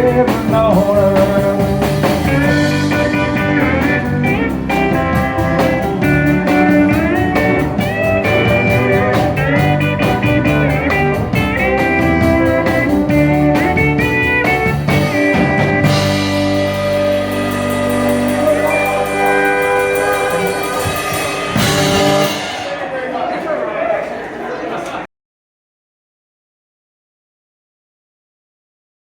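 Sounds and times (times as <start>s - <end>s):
lead electric guitar bending notes: 0.0s - 22.6s
bass guitar: 0.0s - 22.7s
steady drum beat: 0.0s - 23.2s.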